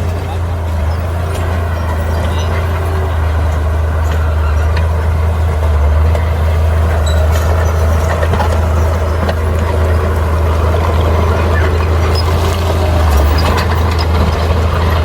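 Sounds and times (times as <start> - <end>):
bulldozer diesel engine drone: 0.0 - 15.0.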